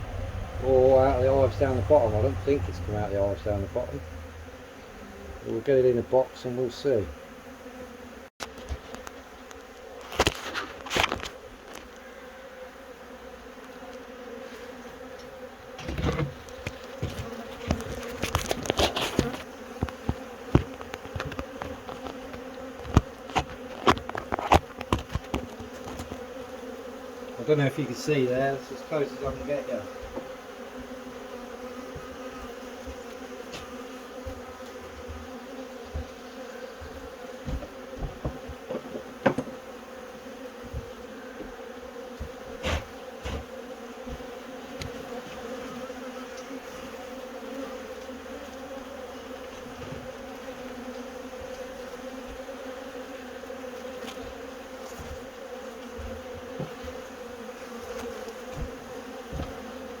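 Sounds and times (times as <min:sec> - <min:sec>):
bees buzzing: 0:00.0 - 1:00.0.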